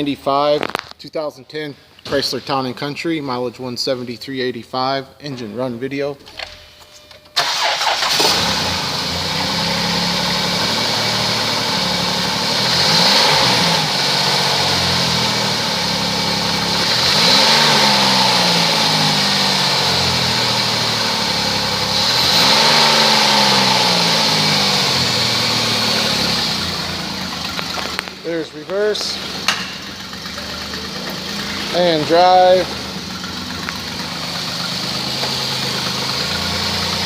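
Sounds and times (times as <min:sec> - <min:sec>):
car engine idling and revving: 0:07.4 - 0:37.0.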